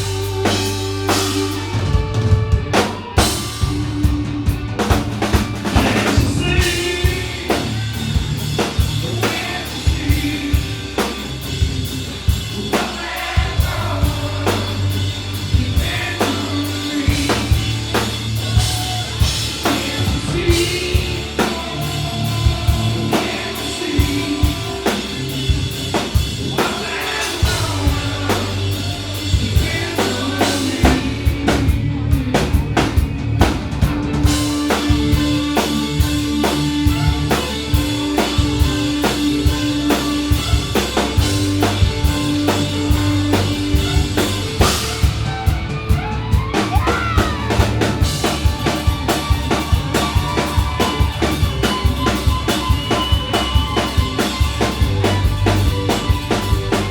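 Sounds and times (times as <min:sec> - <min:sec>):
live band playing: 0:00.0 - 0:56.9
drum kit kick and snare: 0:22.3 - 0:56.9.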